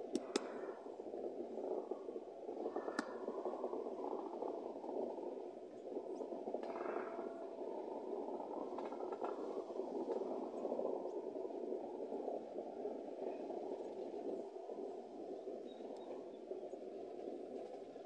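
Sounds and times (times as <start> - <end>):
faint clicks: 0.0 - 0.9, 1.6 - 4.9, 6.2 - 7.5, 8.4 - 11.2, 13.2 - 18.0.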